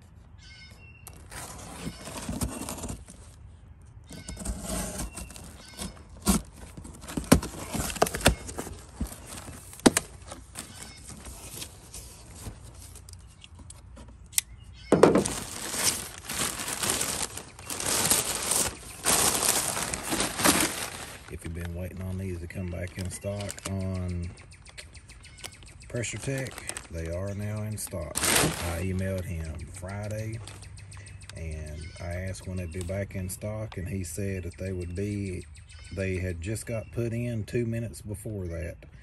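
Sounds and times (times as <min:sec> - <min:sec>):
packaging rustling and tearing: 0:01.0 - 0:03.4, 0:04.1 - 0:14.0, 0:15.0 - 0:24.0, 0:25.4 - 0:30.6
package handling clicks and knocks: 0:06.2 - 0:11.7, 0:14.9 - 0:17.8.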